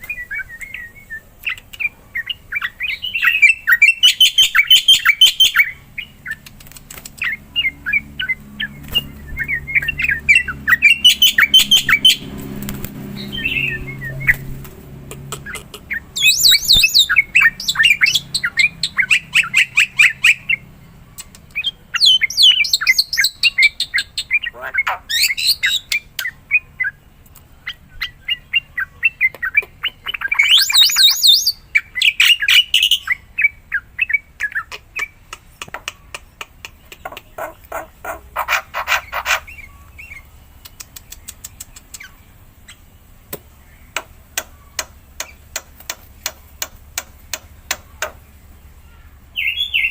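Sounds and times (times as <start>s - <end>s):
myna chattering song: 13.2s - 18.0s, 34.5s - 39.6s.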